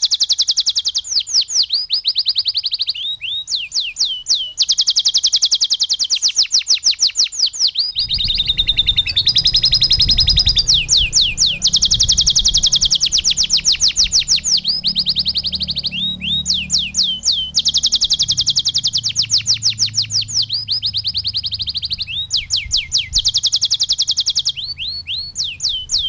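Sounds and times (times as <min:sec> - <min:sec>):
canary singing trills: 0:00.0 - 0:26.0
low hum: 0:08.0 - 0:22.0.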